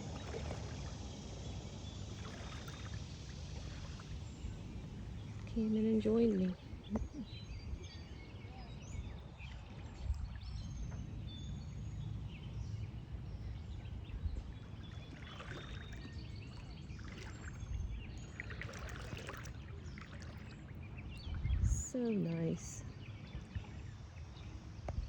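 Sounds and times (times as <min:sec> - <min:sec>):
footsteps wading through water: 0:00.0 - 0:07.3, 0:13.7 - 0:21.6
water splashes: 0:00.0 - 0:07.3, 0:14.4 - 0:22.8
steady low rumble: 0:00.0 - 0:18.8, 0:19.4 - 0:25.0
small birds chirping: 0:00.0 - 0:25.0.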